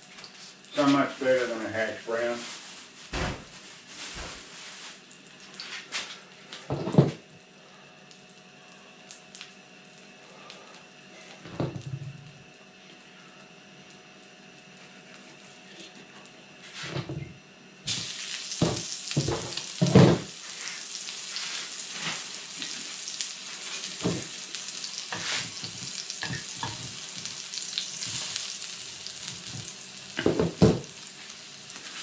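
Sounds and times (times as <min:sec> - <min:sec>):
food sizzling in hot oil: 0:17.8 - 0:32.0.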